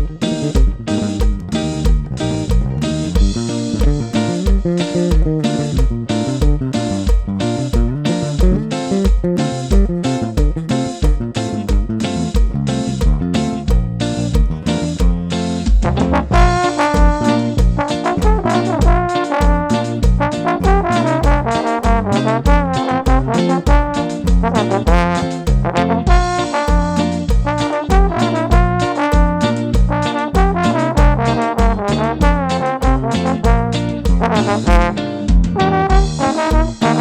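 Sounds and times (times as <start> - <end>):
bass line: 0.0 - 37.0
steady drum beat: 0.0 - 37.0
trombone melody: 7.9 - 11.2, 15.8 - 37.0.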